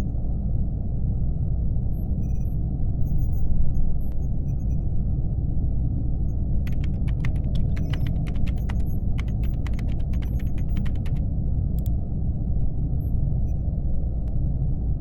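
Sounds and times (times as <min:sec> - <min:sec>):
low ambient hum: 0:06.4 - 0:15.0
laptop keys clacking: 0:06.7 - 0:11.2.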